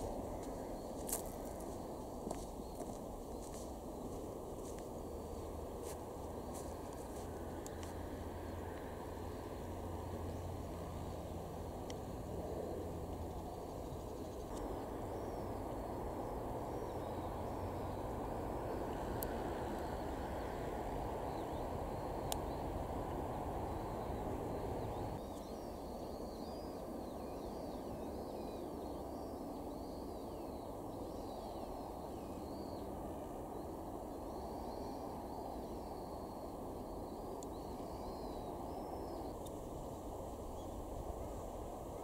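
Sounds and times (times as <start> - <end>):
low outdoor background noise: 0.0 - 42.0
small birds chirping: 0.0 - 42.0.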